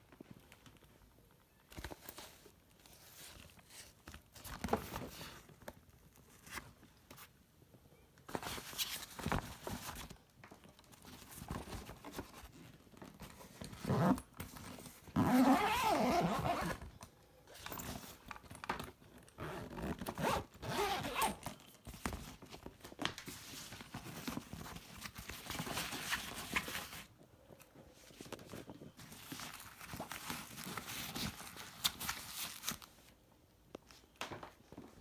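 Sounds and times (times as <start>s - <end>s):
zippers pulled open and shut: 13.7s - 14.4s, 15.1s - 16.8s, 19.4s - 21.5s.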